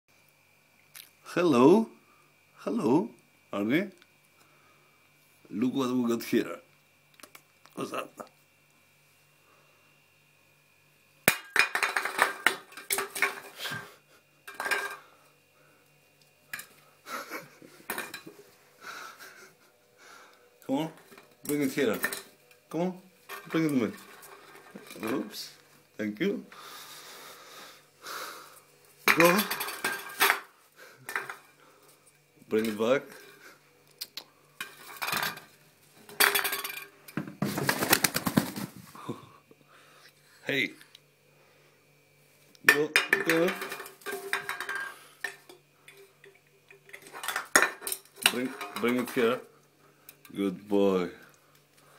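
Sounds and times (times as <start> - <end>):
small hard objects clattering: 29.1 - 30.4, 43.0 - 45.0.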